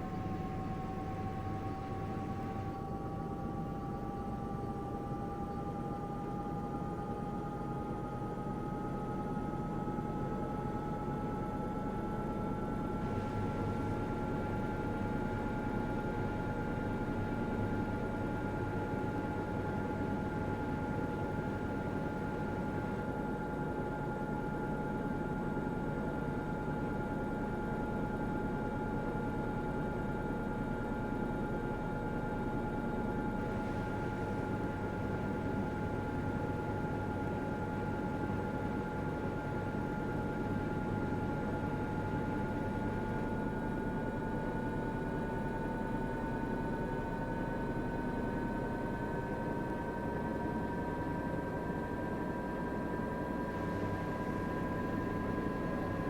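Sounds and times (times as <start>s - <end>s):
washing machine motor whine: 44.8s - 56.0s.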